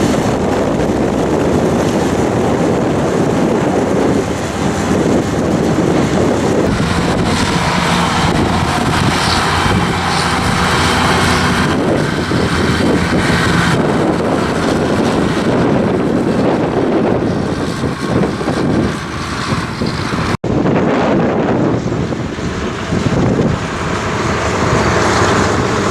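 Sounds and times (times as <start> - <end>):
tractor engine under load: 0.0 - 16.6
wind buffeting microphone: 0.0 - 25.9.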